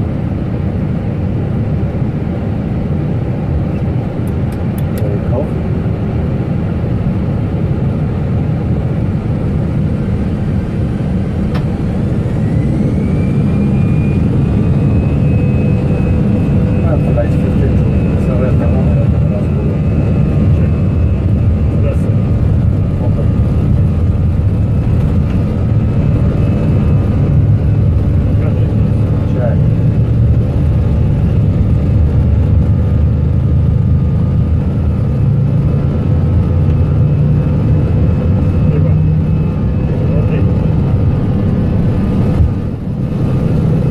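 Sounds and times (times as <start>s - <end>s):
aircraft engine and airflow roar: 0.0s - 43.9s
faint rising whine: 9.5s - 43.9s.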